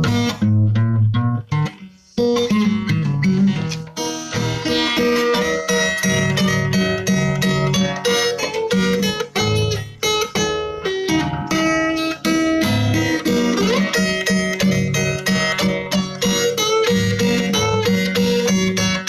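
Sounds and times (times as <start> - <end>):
guitar picked notes with bass: 0.0 - 19.0.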